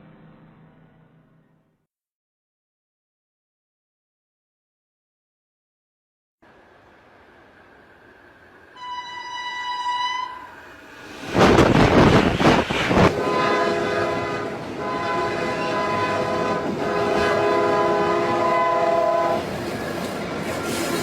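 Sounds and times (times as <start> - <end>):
train horn chord: 8.8 - 10.8, 13.0 - 19.5
loud noisy rush: 10.5 - 21.0.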